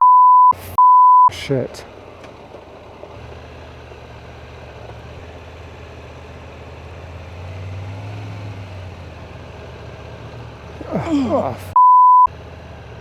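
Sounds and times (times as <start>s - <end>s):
motorcycle engine low hum: 1.8s - 7.4s.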